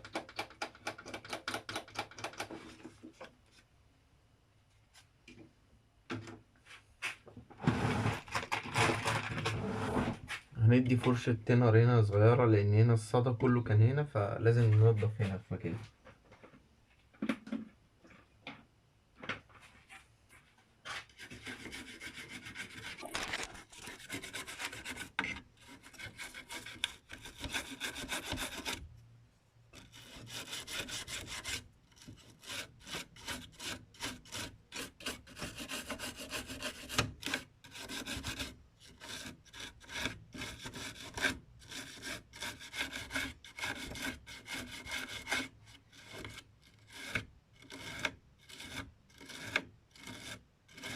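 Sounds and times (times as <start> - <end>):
small brush scrubbing: 19.6 - 28.8, 29.7 - 50.9.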